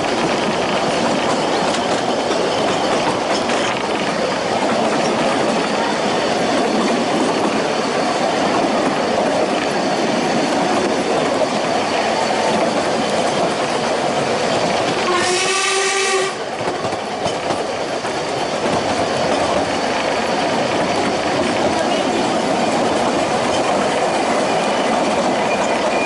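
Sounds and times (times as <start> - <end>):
train wheels rumbling: 0.0 - 26.0
locomotive whistle blast: 15.0 - 16.5.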